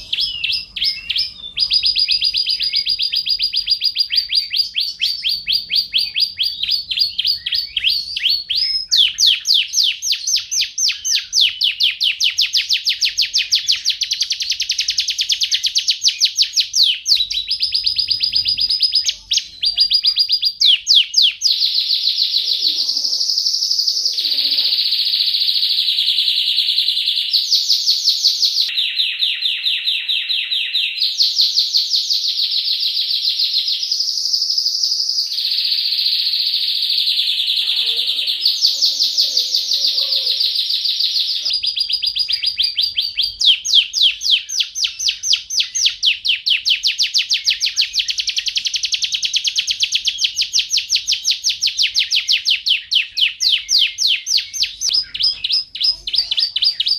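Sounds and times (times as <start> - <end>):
canary singing fast trills: 0.0 - 56.9.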